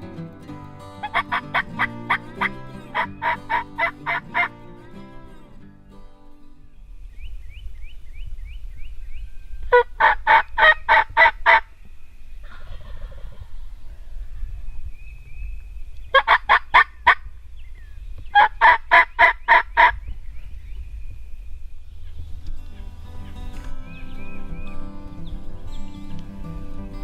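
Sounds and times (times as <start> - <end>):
turkey gobbling: 1.0 - 4.5, 9.7 - 11.7, 12.4 - 14.0, 16.1 - 17.2, 18.3 - 20.0.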